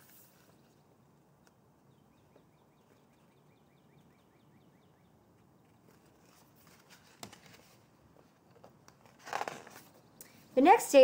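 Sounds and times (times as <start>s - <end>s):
faint bird trill: 1.9s - 5.2s.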